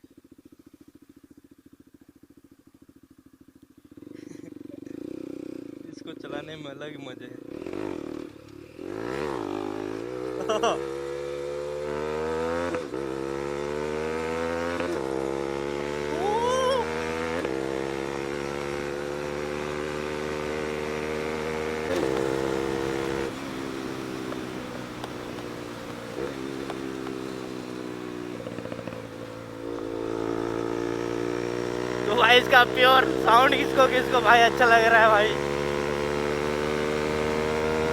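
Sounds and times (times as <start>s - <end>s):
motorcycle engine shifting gears: 7.4s - 16.2s, 16.9s - 37.9s.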